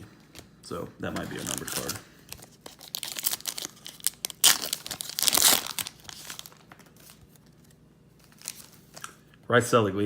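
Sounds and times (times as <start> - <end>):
foil wrapper crinkling and tearing: 1.2 - 9.2.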